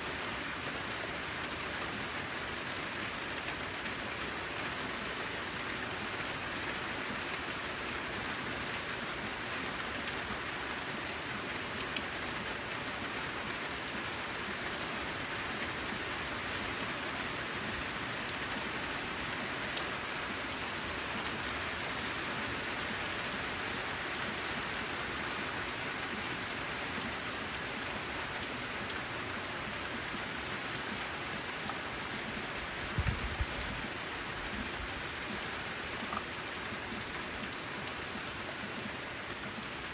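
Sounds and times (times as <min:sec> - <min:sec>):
heavy rain on metal roof: 0:00.0 - 0:39.9.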